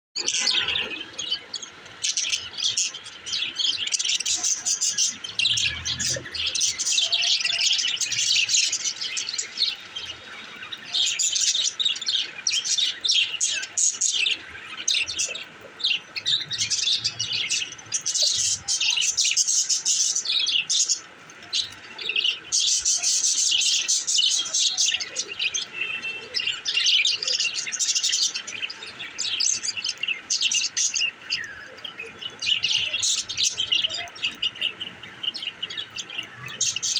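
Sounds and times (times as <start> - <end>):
budgerigars chirping and chattering: 0.2 - 36.9.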